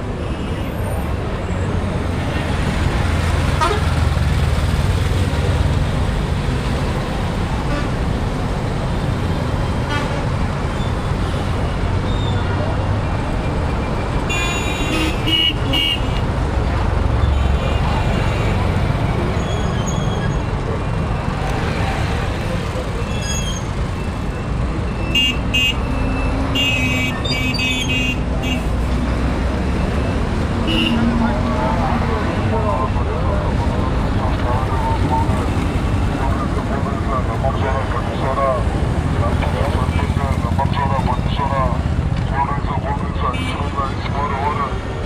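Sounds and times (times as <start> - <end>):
rumble of vehicles: 0.0 - 45.0
vehicle horn toots: 14.3 - 16.2, 25.1 - 25.8, 26.5 - 28.7, 30.6 - 31.2, 43.2 - 43.7
faint voices: 28.2 - 45.0.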